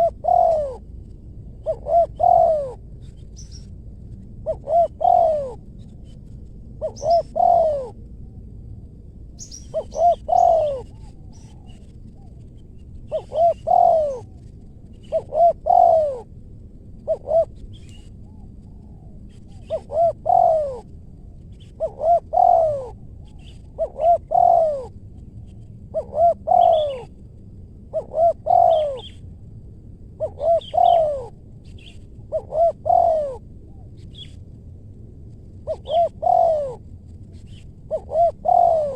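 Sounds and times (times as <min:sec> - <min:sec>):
dove cooing: 0:00.0 - 0:03.6, 0:04.4 - 0:06.2, 0:06.8 - 0:08.0, 0:09.4 - 0:12.4, 0:13.0 - 0:16.3, 0:17.0 - 0:21.0, 0:21.6 - 0:27.2, 0:27.9 - 0:29.2, 0:30.2 - 0:34.3, 0:35.6 - 0:38.9
small birds chirping: 0:02.0 - 0:03.8, 0:04.9 - 0:07.9, 0:09.4 - 0:16.1, 0:26.5 - 0:27.1, 0:28.5 - 0:29.2, 0:30.2 - 0:32.1.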